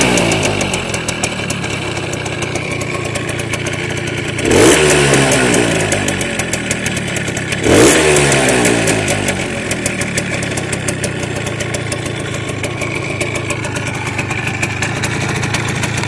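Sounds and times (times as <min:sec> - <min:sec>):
motorcycle engine running at low revs: 0:00.0 - 0:16.0.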